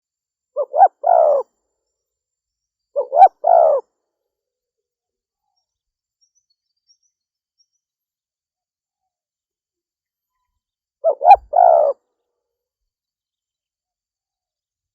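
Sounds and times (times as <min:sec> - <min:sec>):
dove cooing: 0:00.6 - 0:01.5, 0:03.0 - 0:03.8, 0:11.0 - 0:12.0.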